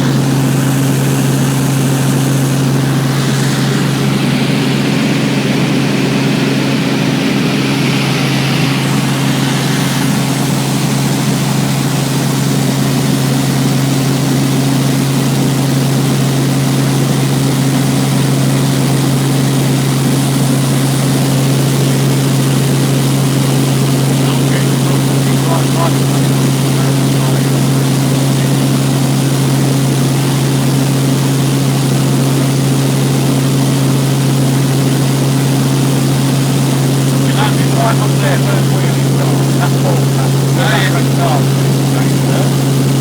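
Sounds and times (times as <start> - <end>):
helicopter engine and rotors: 0.0 - 43.0.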